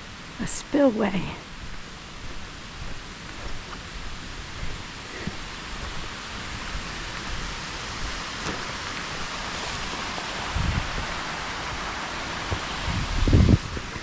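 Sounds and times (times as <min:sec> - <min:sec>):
water rushing over spillway: 0:03.9 - 0:14.0.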